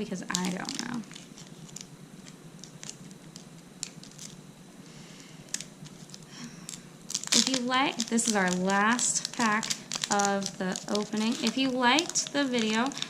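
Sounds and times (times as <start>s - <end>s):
cards clicking and tapping: 5.5s - 13.0s.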